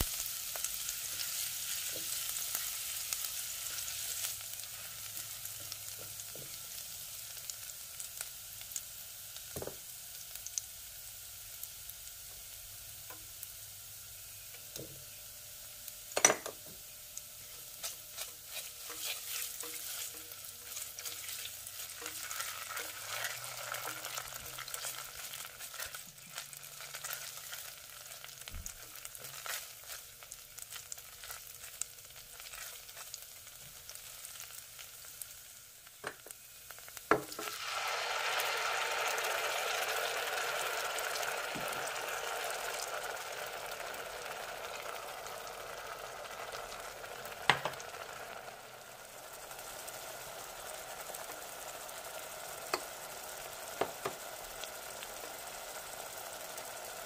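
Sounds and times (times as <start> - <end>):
paste sizzling in oil: 0.0 - 57.0
spatula scraping pan: 17.6 - 26.0.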